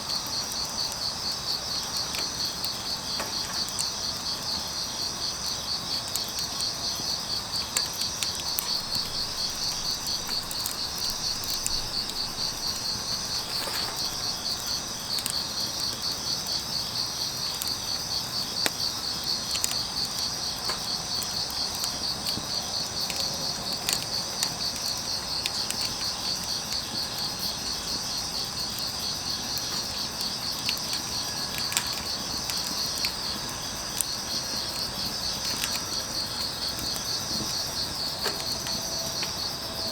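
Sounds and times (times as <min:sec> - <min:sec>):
crickets chirping: 0:00.0 - 0:39.9
wood fire crackling and popping: 0:00.0 - 0:39.9.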